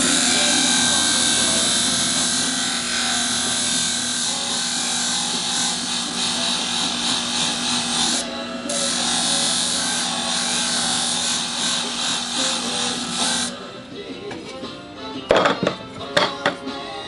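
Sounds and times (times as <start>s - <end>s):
sharpening machine motor hum: 0.0s - 13.6s.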